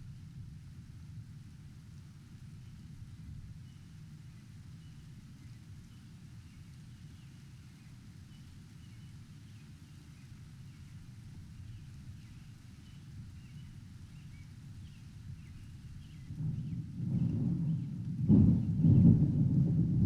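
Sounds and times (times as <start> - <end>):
thunderstorm rumble: 15.0 - 20.0.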